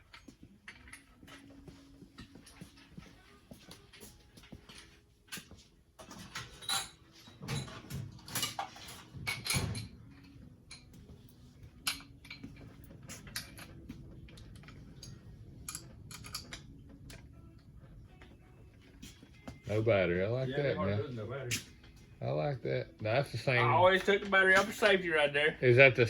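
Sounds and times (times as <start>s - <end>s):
metal tools clinking and rattling: 0.0s - 3.1s, 4.0s - 17.3s.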